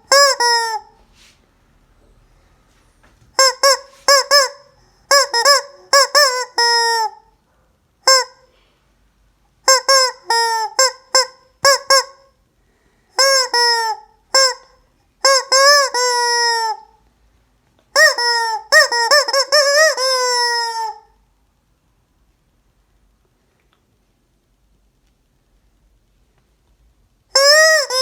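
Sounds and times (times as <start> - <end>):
squeaky rubber chicken toy: 0.0 - 1.0, 3.4 - 7.3, 8.0 - 8.6, 9.6 - 12.4, 13.1 - 17.0, 17.9 - 21.2, 27.3 - 28.0.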